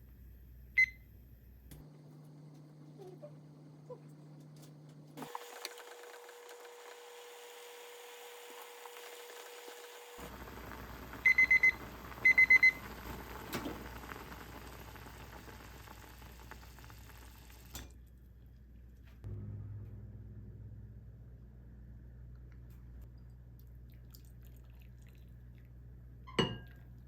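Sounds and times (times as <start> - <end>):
microwave beeps: 0.8 - 1.1, 8.2 - 16.6, 26.3 - 26.7
microwave hum: 0.8 - 18.0, 19.2 - 24.0.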